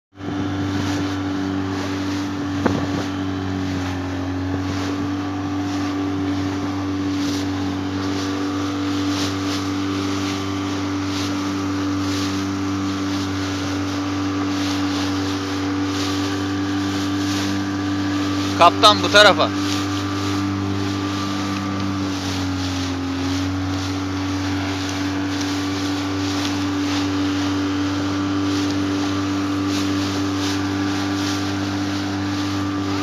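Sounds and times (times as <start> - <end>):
boat engine droning: 0.1 - 33.0
water noise: 0.1 - 33.0
wind noise: 0.2 - 18.6.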